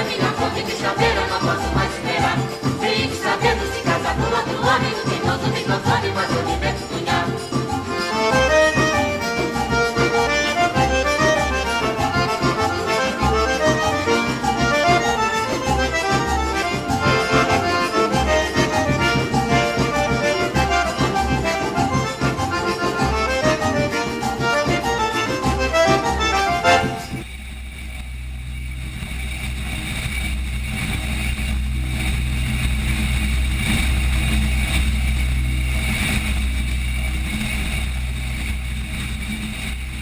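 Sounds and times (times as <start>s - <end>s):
accordion melody: 0.0s - 27.3s.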